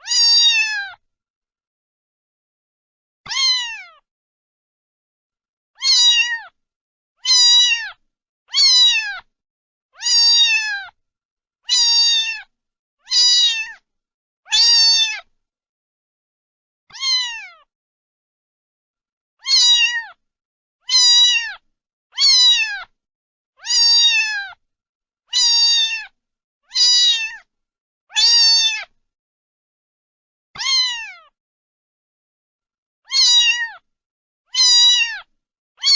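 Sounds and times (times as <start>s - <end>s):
cat meowing: 0.0s - 1.0s, 3.3s - 4.0s, 5.8s - 6.6s, 7.2s - 9.3s, 10.0s - 11.0s, 11.7s - 13.8s, 14.5s - 15.3s, 16.9s - 17.7s, 19.4s - 20.2s, 20.9s - 21.6s, 22.2s - 22.9s, 23.6s - 24.6s, 25.3s - 27.5s, 28.1s - 28.9s, 30.6s - 31.4s, 33.1s - 33.8s, 34.5s - 35.9s.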